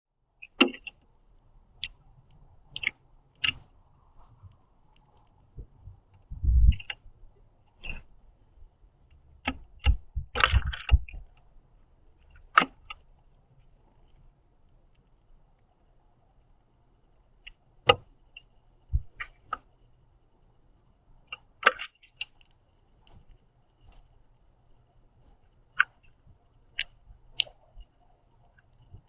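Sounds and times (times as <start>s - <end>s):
bird pecking plastic feeder: 0.4s - 1.0s
low bumps: 5.6s - 6.8s.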